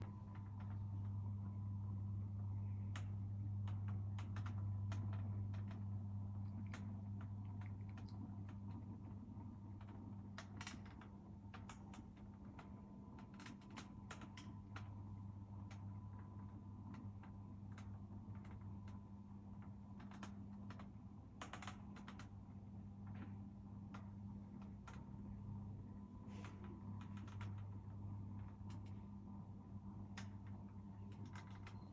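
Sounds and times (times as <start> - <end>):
light clicks and taps: 0.0 - 1.2, 2.6 - 15.0, 15.6 - 22.3, 26.4 - 29.1, 30.0 - 31.9
low electrical hum: 0.0 - 31.9.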